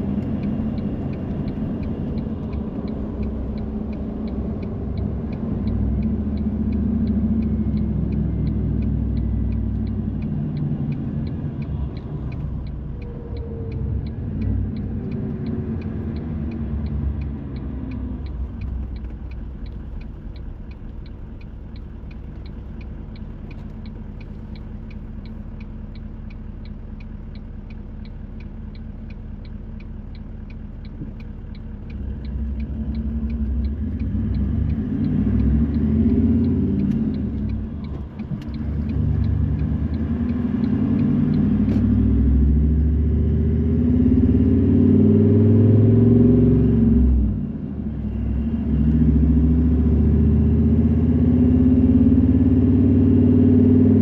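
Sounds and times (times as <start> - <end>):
fast even ticking: 0.0 - 42.4
car engine and road rumble: 0.0 - 54.0.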